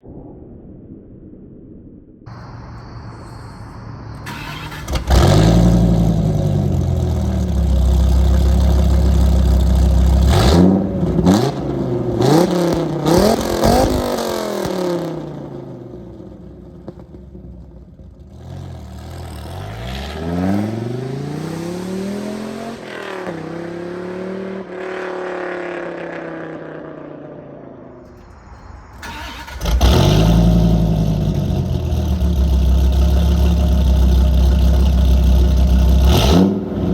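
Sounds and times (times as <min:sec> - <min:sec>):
car engine deep steady note: 0:02.3 - 0:13.0, 0:28.0 - 0:36.9
engine revving sharply: 0:02.3 - 0:15.3, 0:18.4 - 0:25.2, 0:28.0 - 0:33.8, 0:34.5 - 0:36.9
exhaust cracks: 0:04.1 - 0:20.7, 0:28.0 - 0:36.9.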